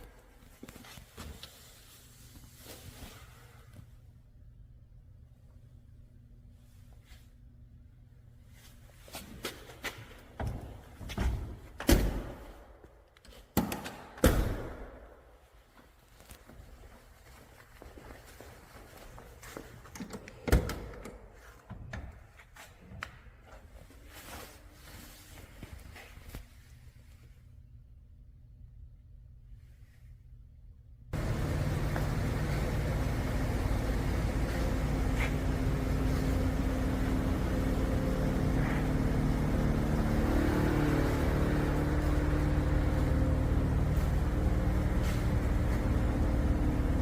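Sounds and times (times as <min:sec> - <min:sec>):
car engine running: 0:31.2 - 0:47.0.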